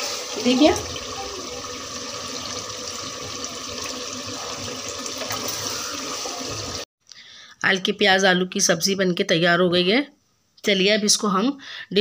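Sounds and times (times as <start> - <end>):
food sizzling in oil: 0.0 - 6.9.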